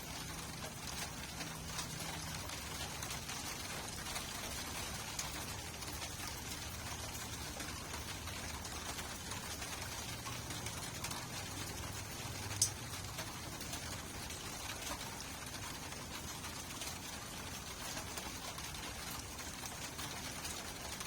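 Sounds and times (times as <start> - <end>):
steady rainfall: 0.0 - 21.0.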